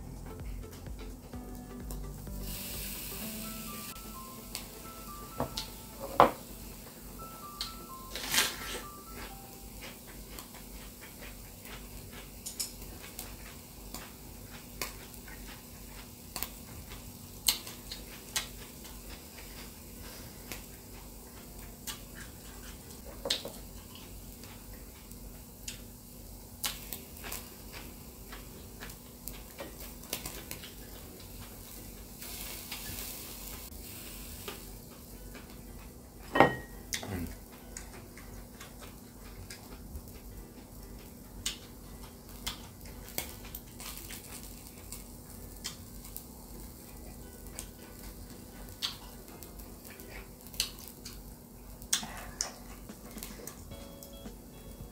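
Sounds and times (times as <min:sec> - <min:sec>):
meat sizzling on grill: 0:00.6 - 0:52.0
chewing: 0:09.8 - 0:25.9, 0:26.6 - 0:31.8, 0:36.9 - 0:46.2, 0:46.8 - 0:53.7
chopsticks clicking: 0:41.0 - 0:44.4.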